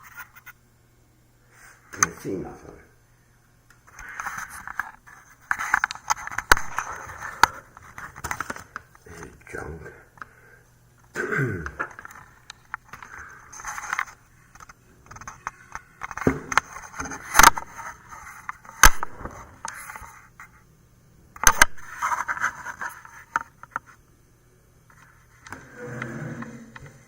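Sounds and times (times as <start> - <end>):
faint low hum: 0.0 - 27.0
objects scraping on hard surface: 25.0 - 27.0.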